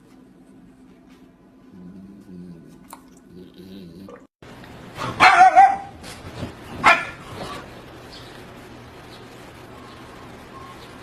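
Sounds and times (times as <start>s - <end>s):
dog barking: 5.0s - 6.0s, 6.8s - 7.6s.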